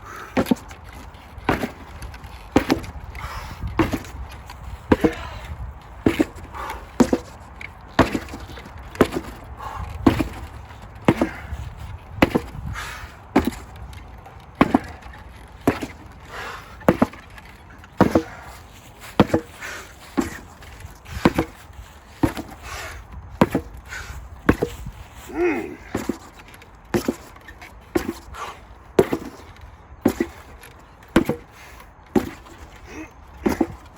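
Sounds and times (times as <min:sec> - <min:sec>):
sledgehammer striking: 0:02.5 - 0:03.0, 0:03.7 - 0:04.2, 0:04.9 - 0:05.4, 0:07.0 - 0:09.4, 0:10.0 - 0:11.6, 0:12.2 - 0:12.6, 0:13.3 - 0:13.7, 0:14.6 - 0:17.2, 0:19.2 - 0:20.5, 0:21.1 - 0:21.6, 0:23.4 - 0:23.8, 0:31.1 - 0:31.5.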